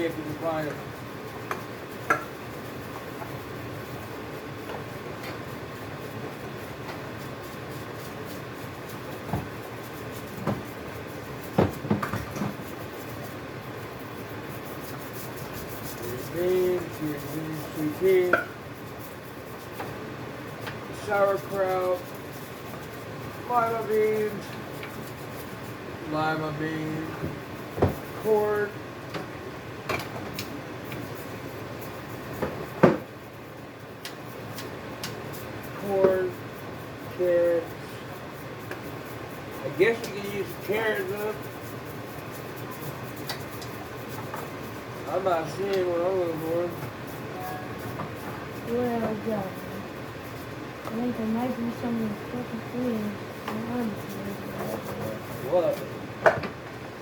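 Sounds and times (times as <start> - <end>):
steady background hum: 0.0 - 57.0.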